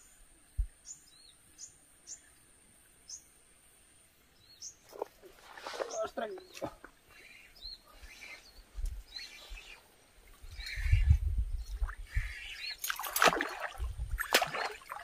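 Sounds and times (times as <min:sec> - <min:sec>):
bird chirping: 0:00.0 - 0:02.4, 0:04.4 - 0:05.1, 0:05.8 - 0:12.9.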